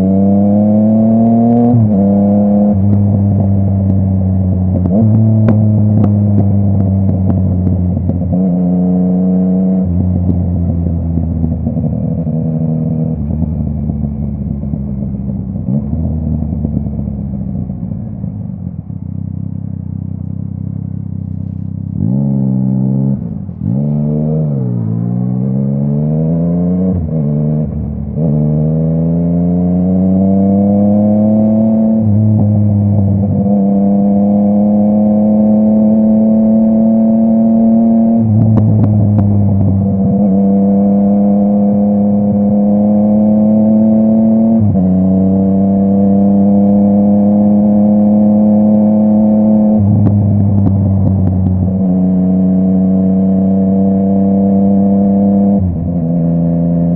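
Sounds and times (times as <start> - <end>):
motorcycle engine accelerating: 0.0 - 56.9
exhaust cracks: 18.9 - 26.0.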